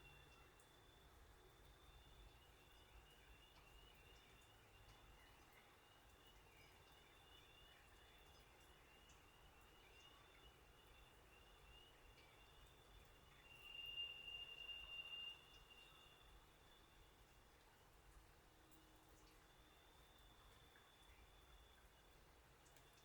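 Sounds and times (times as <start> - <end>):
faint ticks: 0.0 - 23.0.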